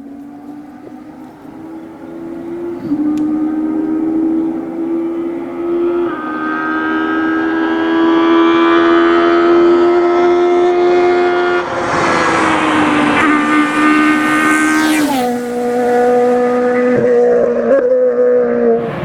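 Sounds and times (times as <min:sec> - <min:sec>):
rally car engine at high revs: 0:00.0 - 0:19.0
rush of noise: 0:11.3 - 0:16.6, 0:18.8 - 0:19.0.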